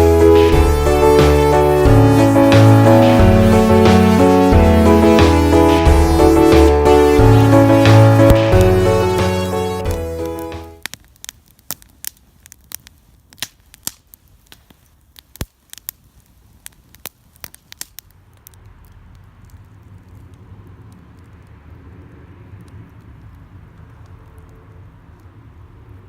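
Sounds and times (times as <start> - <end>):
steady rushing noise: 0.0 - 10.7
wood fire crackling and popping: 0.0 - 26.0.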